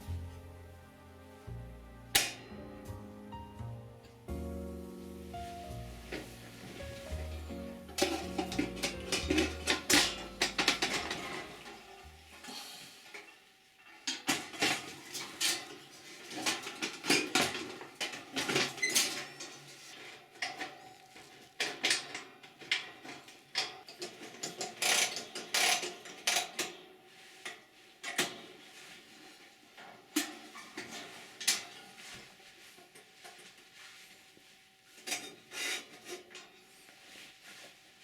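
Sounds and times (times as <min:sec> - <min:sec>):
metal scraping: 0:05.3 - 0:12.5
metal parts clinking: 0:07.9 - 0:11.9.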